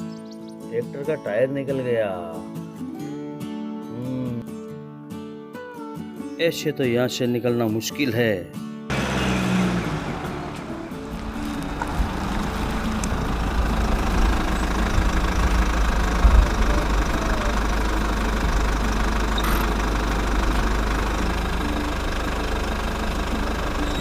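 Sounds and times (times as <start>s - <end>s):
tractor engine idling: 8.9s - 24.0s.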